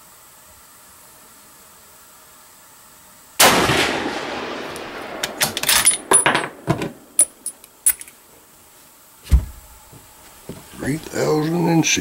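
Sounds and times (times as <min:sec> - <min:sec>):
rifle shot: 0:03.4 - 0:07.2.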